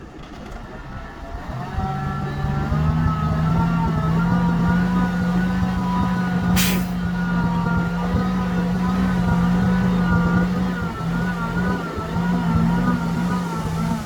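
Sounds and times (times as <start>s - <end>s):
diesel machinery engine running: 0.0s - 14.0s
wavering whine: 0.0s - 14.0s
hissing air burst: 6.6s - 7.0s.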